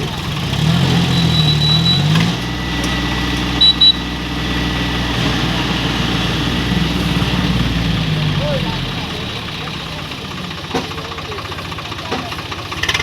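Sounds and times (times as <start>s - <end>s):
tractor engine running: 0.0s - 13.0s
short high-pitched beeps: 1.1s - 2.2s, 3.6s - 4.2s.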